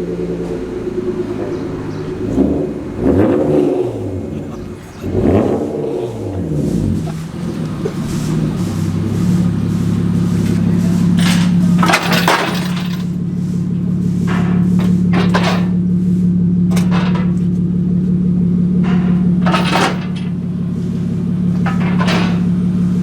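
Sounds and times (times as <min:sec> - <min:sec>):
car engine idling loudly: 0:00.0 - 0:23.0
sharp knocks and clacks: 0:06.5 - 0:13.2.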